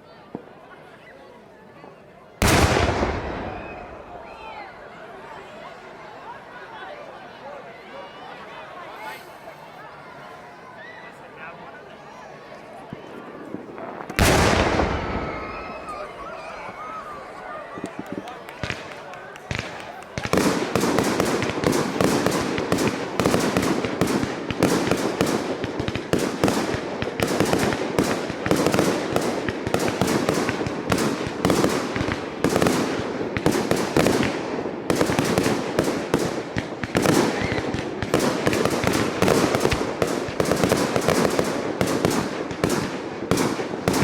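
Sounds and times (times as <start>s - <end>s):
fireworks bursting and crackling: 2.4s - 4.8s, 12.9s - 44.0s.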